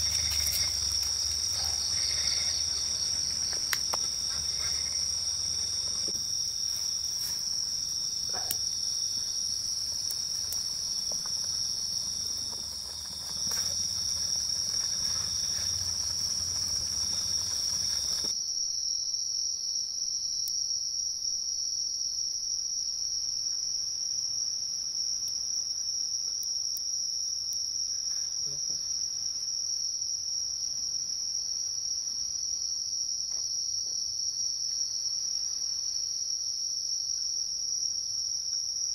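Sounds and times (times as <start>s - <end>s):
insect trilling: 0.0s - 18.3s.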